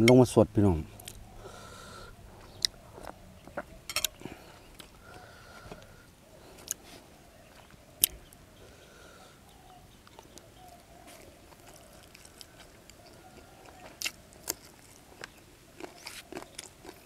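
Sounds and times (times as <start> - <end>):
person chewing food: 1.0 - 5.9, 10.0 - 17.0.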